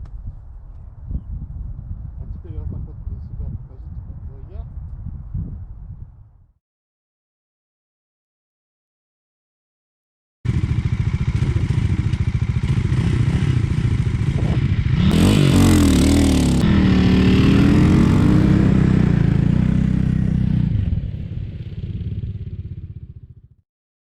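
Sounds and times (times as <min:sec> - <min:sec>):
off-road motorcycle engine: 0:10.5 - 0:23.6.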